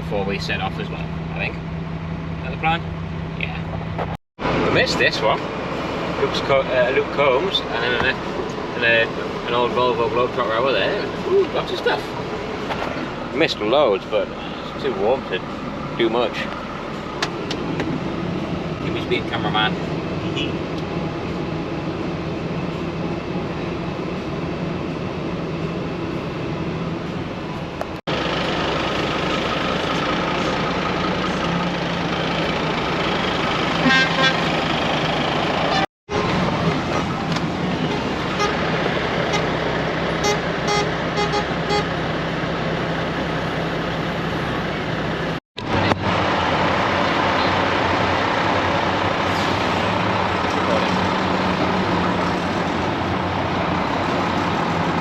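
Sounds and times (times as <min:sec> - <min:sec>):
diesel trucks moving off: 0:00.0 - 0:55.0
air horn blasts: 0:33.8 - 0:34.6, 0:37.9 - 0:38.6, 0:39.2 - 0:39.5, 0:40.2 - 0:41.9.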